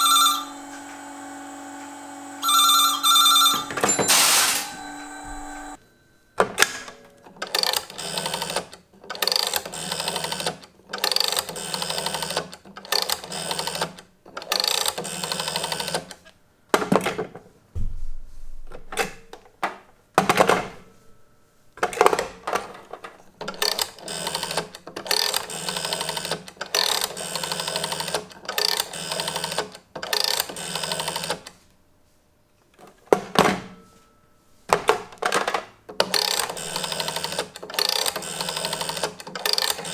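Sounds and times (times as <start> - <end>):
low thump: 17.8 - 18.4.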